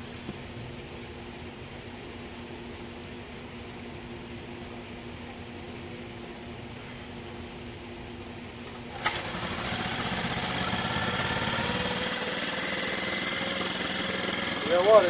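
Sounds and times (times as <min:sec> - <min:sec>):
faint steady hum: 0:00.0 - 0:10.6
outboard motor running: 0:08.9 - 0:15.0.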